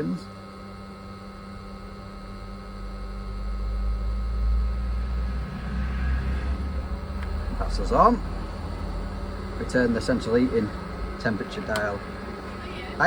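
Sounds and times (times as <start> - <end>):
boiler hum: 0.0 - 13.0
boiler firing rumble: 1.2 - 13.0.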